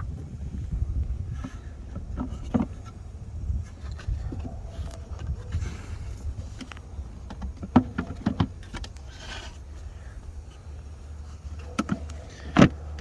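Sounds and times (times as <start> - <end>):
low steady rumble: 0.0 - 13.0
hard plastic clicks and knocks: 6.5 - 9.1, 11.6 - 12.8.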